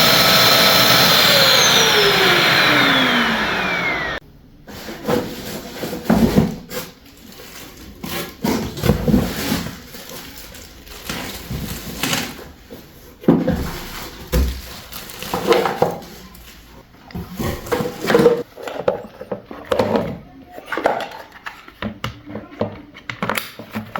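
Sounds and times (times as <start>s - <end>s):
hard objects knocking and clattering: 7.9s - 16.2s, 17.1s - 23.9s.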